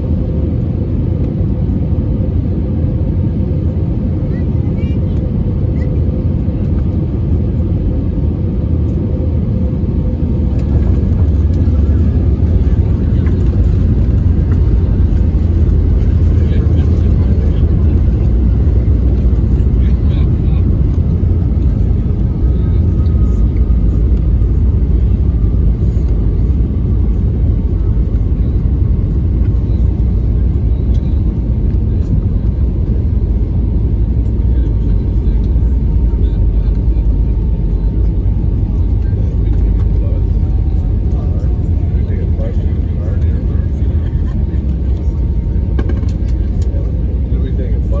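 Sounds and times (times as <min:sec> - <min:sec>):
airplane cabin rumble: 0:00.0 - 0:48.0.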